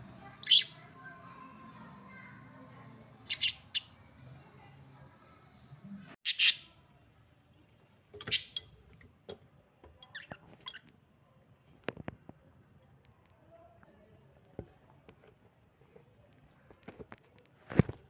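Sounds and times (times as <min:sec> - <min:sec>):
budgerigars chirping: 0:00.3 - 0:00.8, 0:03.2 - 0:04.0.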